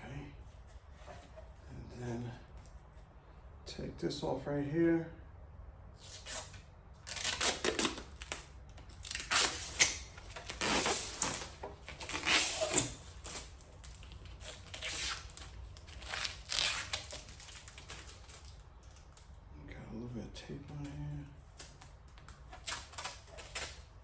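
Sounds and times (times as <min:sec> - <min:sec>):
tape and covering tearing: 0:06.0 - 0:19.4, 0:21.4 - 0:24.0.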